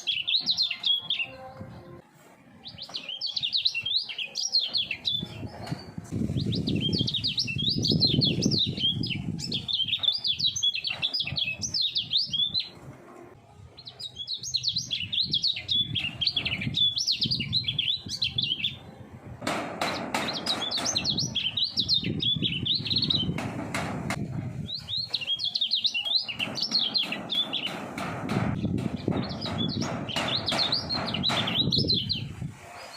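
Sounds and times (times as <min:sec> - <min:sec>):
bird singing fast warbling chirps: 0:06.4 - 0:12.7, 0:13.8 - 0:18.8, 0:20.4 - 0:23.4, 0:24.7 - 0:27.7.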